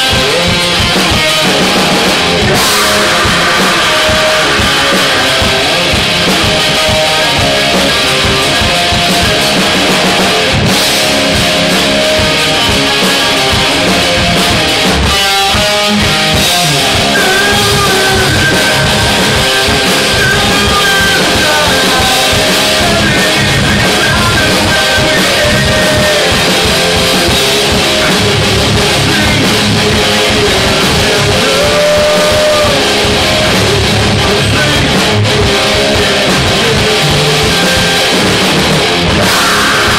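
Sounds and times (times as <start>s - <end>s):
live rock band playing: 0.0s - 39.9s
sustained guitar lines ringing: 0.4s - 14.4s.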